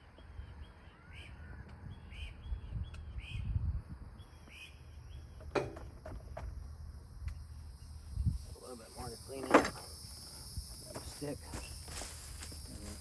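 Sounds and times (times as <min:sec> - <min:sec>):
bird calling: 0:04.2 - 0:06.1.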